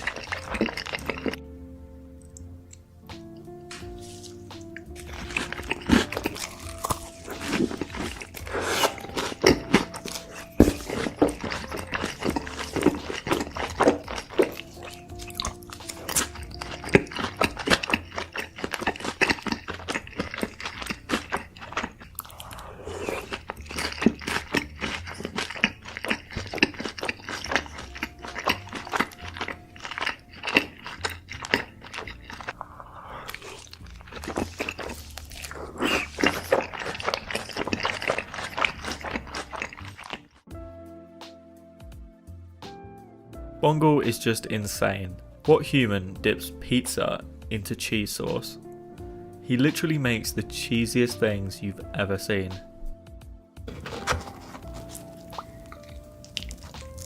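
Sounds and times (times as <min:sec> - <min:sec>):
crunchy bites and wet chewing: 0:00.0 - 0:01.4, 0:03.7 - 0:40.5, 0:53.6 - 0:57.0
soft background music: 0:00.0 - 0:57.0.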